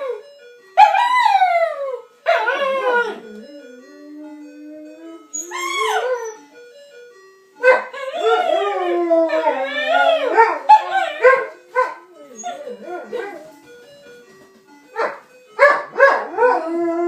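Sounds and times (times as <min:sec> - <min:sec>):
ice cream truck jingle: 0:00.0 - 0:17.0
dogs howling: 0:00.8 - 0:06.4, 0:07.7 - 0:13.5, 0:15.8 - 0:17.0.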